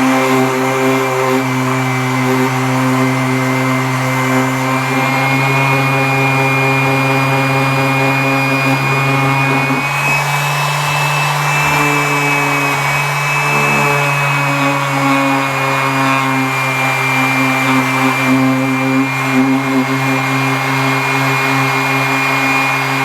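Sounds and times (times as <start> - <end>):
power tool motor running: 0.0 - 23.0.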